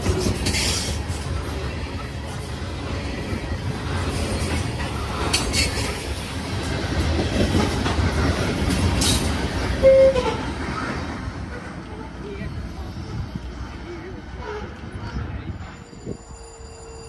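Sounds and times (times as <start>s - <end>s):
freight train rumbling past: 0.0s - 17.0s
sharp clanks of train cars: 0.0s - 17.0s.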